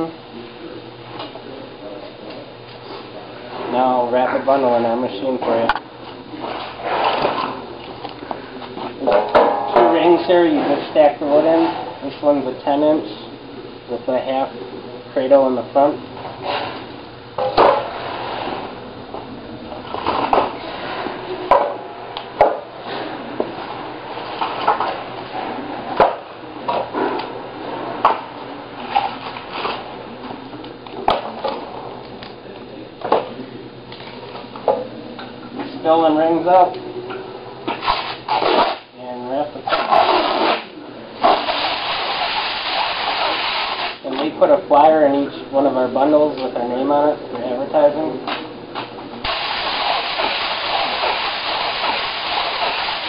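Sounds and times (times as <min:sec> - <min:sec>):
plastic wrap pulling off roll: 0:37.7 - 0:38.9.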